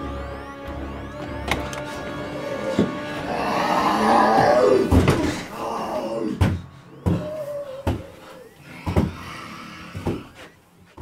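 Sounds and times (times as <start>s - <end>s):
horror screeching swell: 2.1s - 9.9s.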